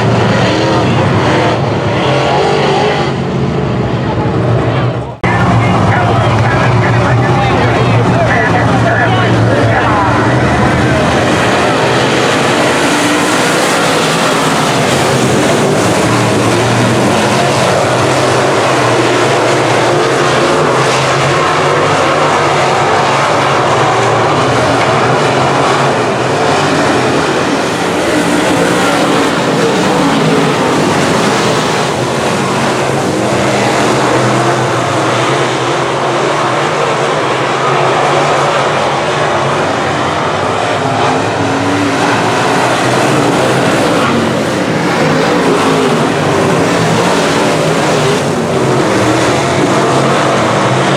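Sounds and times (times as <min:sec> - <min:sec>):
race car engines droning: 0:00.0 - 0:50.9.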